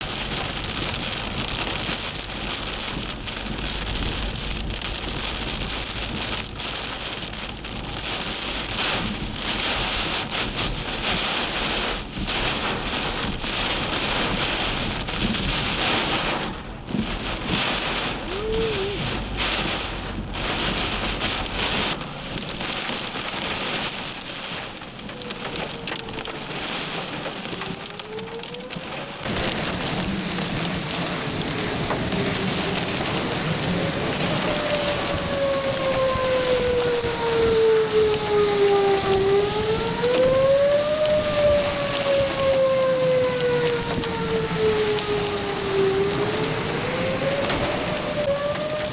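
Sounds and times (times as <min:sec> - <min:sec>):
torrential rain hissing: 0:00.0 - 0:48.9
low thunder rumbling: 0:00.1 - 0:48.9.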